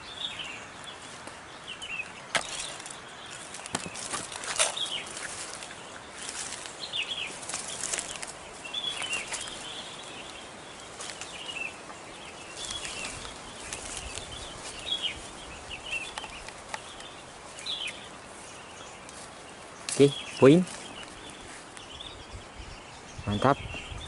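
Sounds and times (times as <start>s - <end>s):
birds chirping: 0.0s - 24.0s
clicks and rustles: 2.3s - 9.8s.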